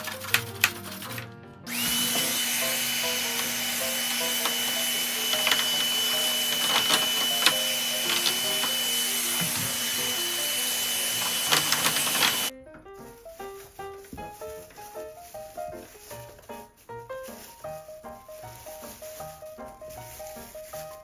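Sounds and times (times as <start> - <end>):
soft background music: 0.0 - 21.0
vacuum cleaner whining: 1.7 - 12.5.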